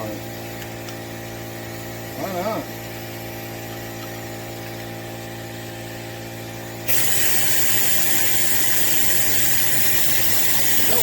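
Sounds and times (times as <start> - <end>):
compressed air hissing: 6.8 - 11.0.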